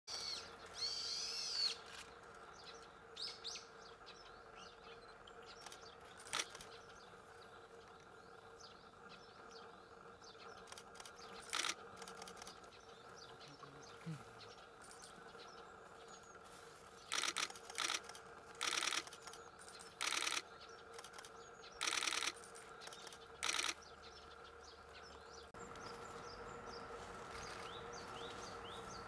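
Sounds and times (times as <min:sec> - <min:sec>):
faint high bird chirps: 0:00.1 - 0:29.0
faint steady hum: 0:00.1 - 0:29.0
sharp clicks: 0:05.5 - 0:06.8, 0:10.6 - 0:12.7, 0:17.1 - 0:23.8.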